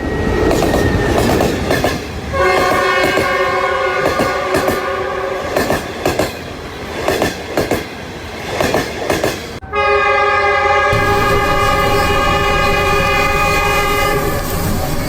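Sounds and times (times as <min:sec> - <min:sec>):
train wheels clacking over joints: 0:00.4 - 0:09.6
train horn: 0:02.3 - 0:05.7, 0:09.6 - 0:15.0.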